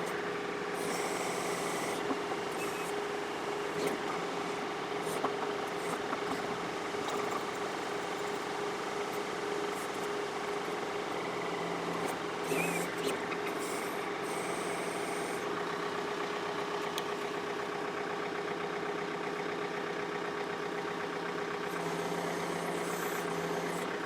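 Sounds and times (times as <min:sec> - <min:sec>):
tractor diesel engine running: 0:15.4 - 0:24.0.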